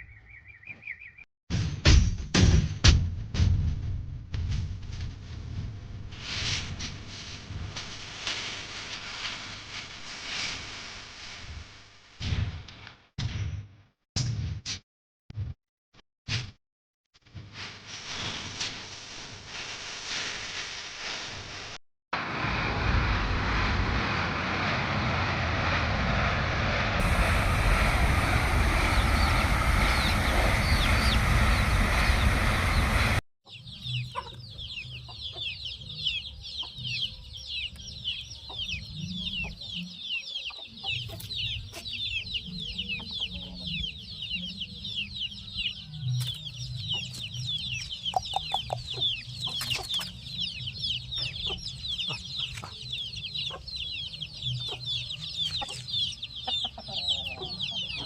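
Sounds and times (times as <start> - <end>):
low hum: 22.2 - 33.2
wind rushing on microphone: 22.2 - 33.2
chicks peeping: 29.9 - 31.2, 33.5 - 58.0.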